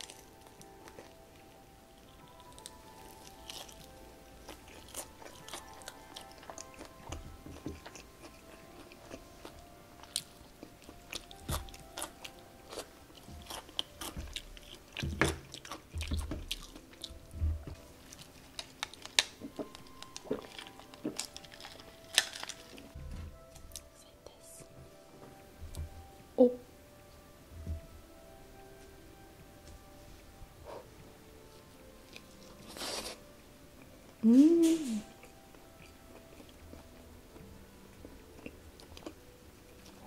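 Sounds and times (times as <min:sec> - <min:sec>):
wet chewing: 0:00.0 - 0:23.0
crunching fried chicken: 0:18.0 - 0:23.0.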